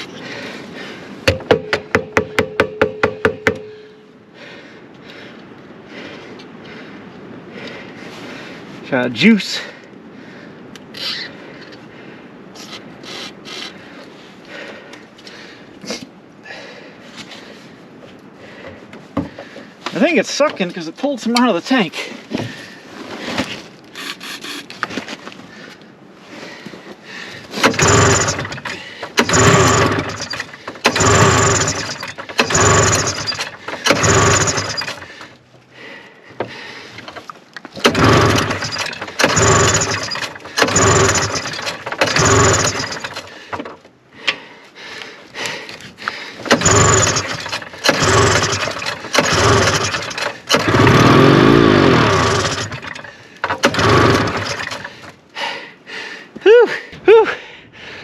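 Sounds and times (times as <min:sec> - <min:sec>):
recoil rope pulls: 0:23.3 - 0:24.8, 0:27.5 - 0:35.3, 0:37.0 - 0:43.8, 0:46.4 - 0:55.2
engine trying to fire: 0:27.5 - 0:35.4, 0:36.4 - 0:43.8, 0:46.4 - 0:55.2.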